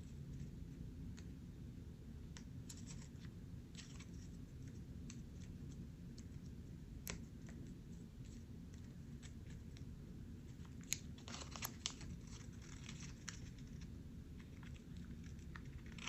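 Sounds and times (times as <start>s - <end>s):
low room hum: 0.0s - 16.0s
paper being folded and creased: 10.6s - 13.9s.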